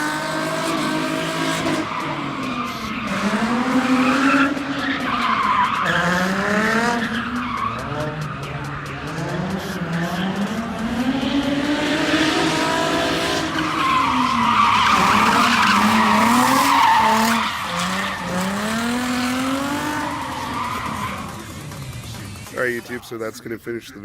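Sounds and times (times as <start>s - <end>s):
car engine revving: 0.0s - 23.0s
tyres squealing: 0.9s - 9.2s, 13.4s - 23.2s.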